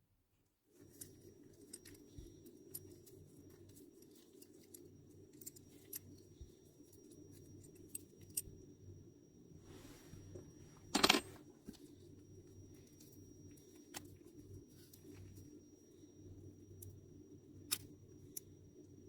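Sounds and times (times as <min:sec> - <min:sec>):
metal parts clicking and tapping: 0:00.9 - 0:06.2, 0:10.9 - 0:11.4
soft rustle: 0:09.6 - 0:12.2
metal tools clattering: 0:11.0 - 0:11.4.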